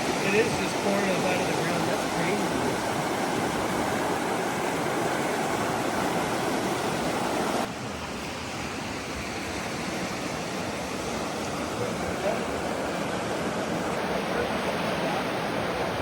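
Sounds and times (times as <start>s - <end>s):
spring water gushing: 0.0s - 16.0s.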